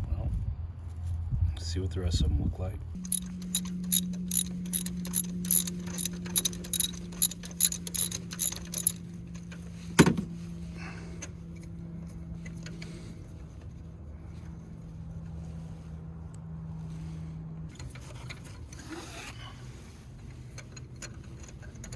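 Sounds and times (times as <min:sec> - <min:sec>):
ratchet wrench clicking: 0:03.0 - 0:09.0.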